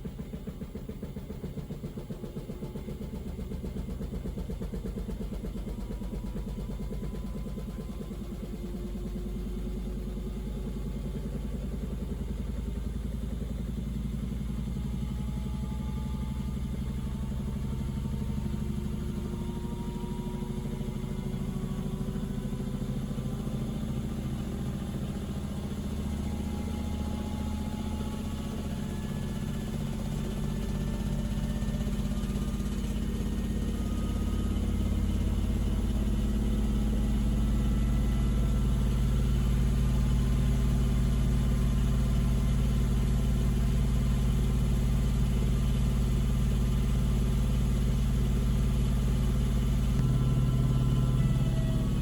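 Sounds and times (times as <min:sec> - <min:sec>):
motor whine: 0:49.4 - 0:52.0.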